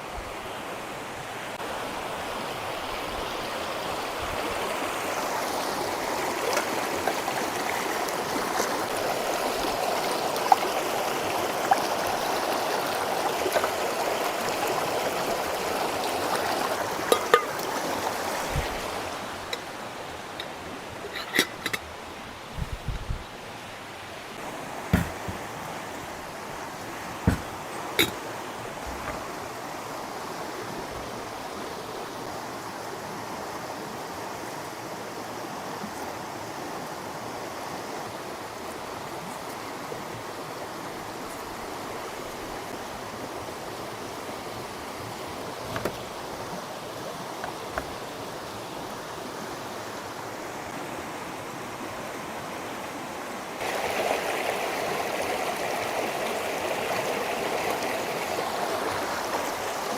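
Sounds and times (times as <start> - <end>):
running water: 0.0 - 59.9
faint knocks: 24.9 - 25.5, 27.2 - 28.2.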